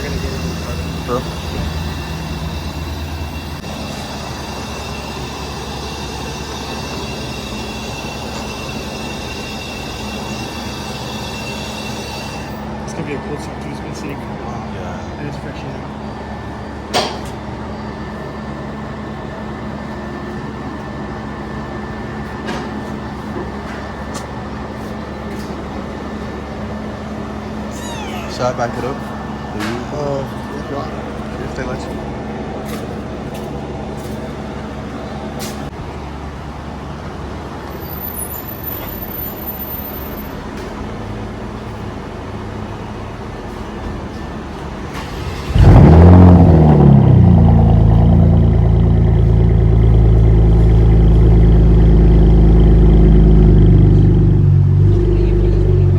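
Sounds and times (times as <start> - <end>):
car engine idling: 0.0 - 3.7, 45.0 - 55.9
low mechanical drone: 0.0 - 6.5, 40.5 - 55.9.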